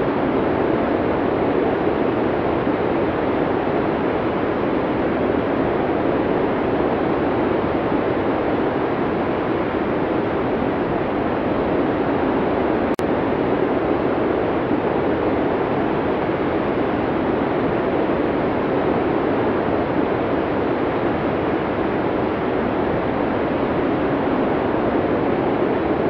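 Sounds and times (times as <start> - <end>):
steady blizzard wind: 0.0 - 26.0.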